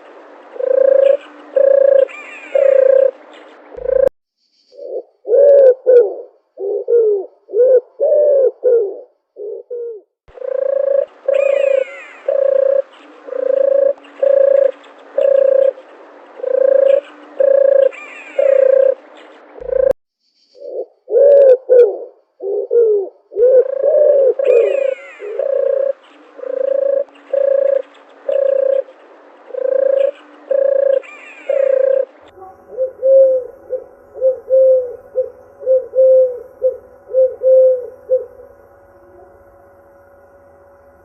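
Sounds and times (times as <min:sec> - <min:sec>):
doves cooing: 0:00.0 - 0:04.1, 0:04.8 - 0:20.0, 0:20.6 - 0:39.5
steady background hum: 0:00.0 - 0:04.1, 0:10.3 - 0:19.9, 0:23.3 - 0:41.0.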